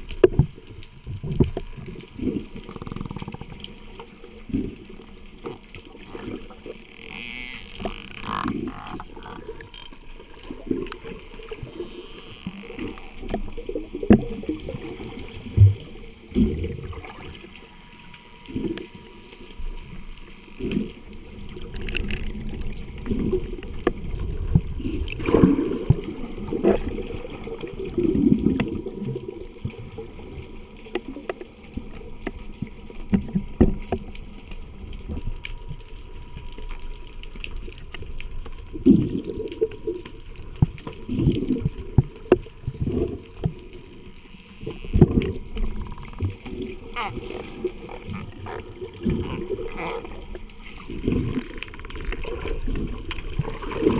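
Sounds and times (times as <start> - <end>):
water sloshing and gurgling: 0.0 - 53.9
sharp clicks: 42.0 - 53.9.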